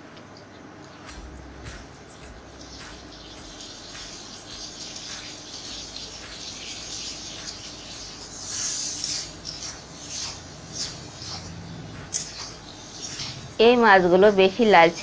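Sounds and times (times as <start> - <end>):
prawns sizzling in hot oil: 1.2 - 15.0
spatula scraping pan: 6.4 - 13.8.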